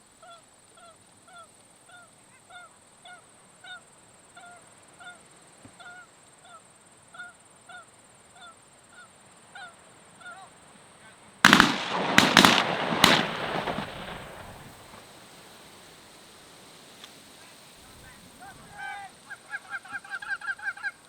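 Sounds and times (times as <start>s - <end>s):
geese honking: 0.2s - 14.6s, 17.4s - 21.0s
shotgun blasts: 11.4s - 15.0s.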